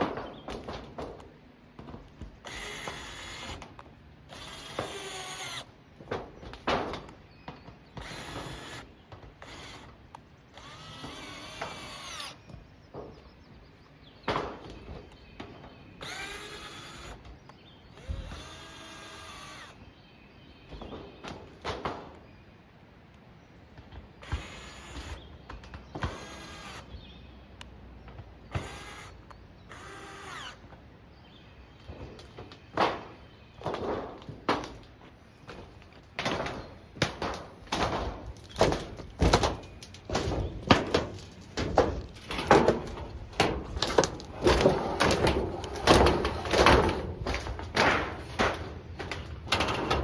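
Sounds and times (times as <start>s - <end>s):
power drill whining: 2.4s - 5.7s, 8.0s - 12.5s, 16.0s - 17.2s, 17.9s - 19.8s, 24.2s - 25.2s, 26.0s - 26.9s, 28.5s - 30.6s.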